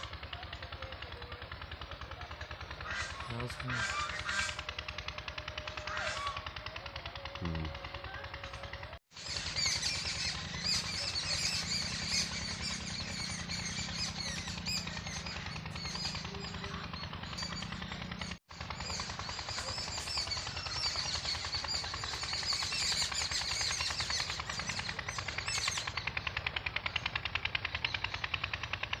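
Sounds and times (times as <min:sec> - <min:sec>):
fast even pulsing: 0:00.0 - 0:29.0
small birds chirping: 0:09.2 - 0:28.5.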